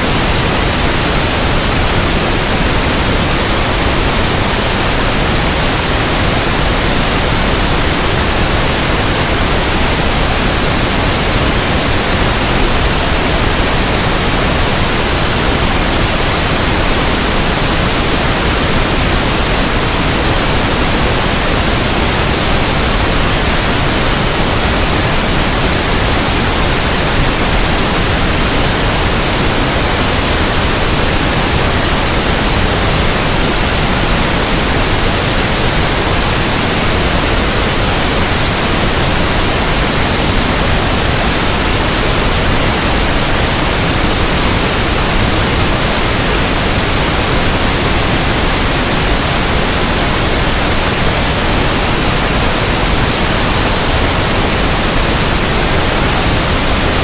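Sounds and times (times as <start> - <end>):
steady pink noise hiss: 0.0 - 57.0.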